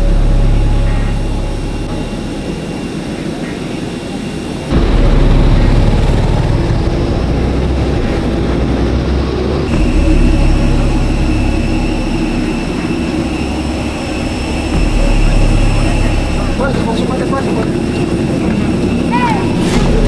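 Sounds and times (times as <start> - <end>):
jet engines rumbling and whining: 0.0 - 20.0.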